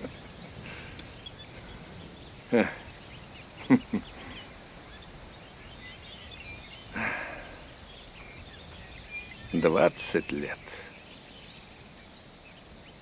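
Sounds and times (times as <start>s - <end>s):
faint bird calls: 0.0s - 13.0s
insect calls: 0.0s - 13.0s
breathy sound: 7.0s - 7.6s.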